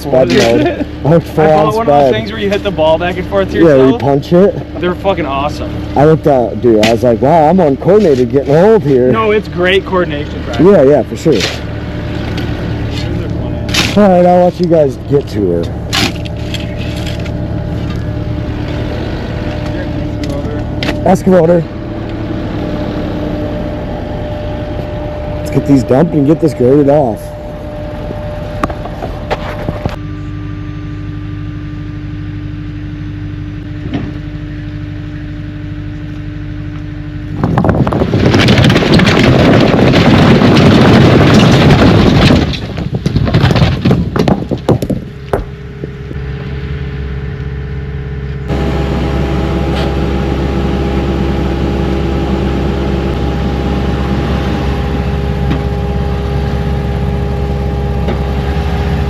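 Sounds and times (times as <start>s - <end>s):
diesel engine running: 0.0s - 59.0s
load being dumped: 37.3s - 45.2s
scattered clatter: 37.3s - 46.5s.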